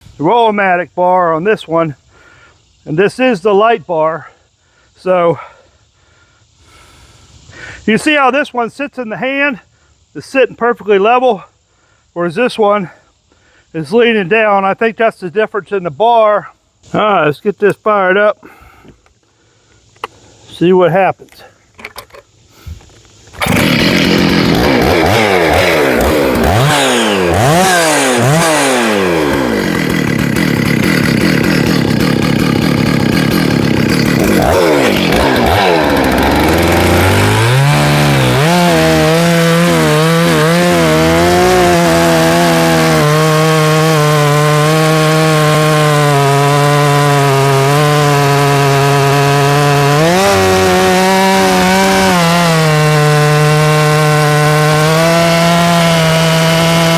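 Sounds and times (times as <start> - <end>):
chainsaw revving and cutting wood: 23.2 - 56.9.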